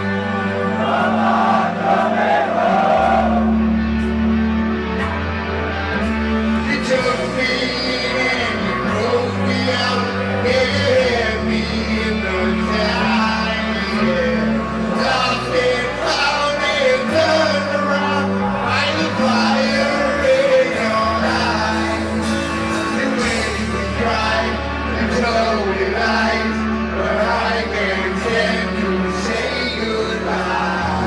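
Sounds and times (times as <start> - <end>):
live rock band: 0.0 - 31.0
man singing: 6.6 - 31.0.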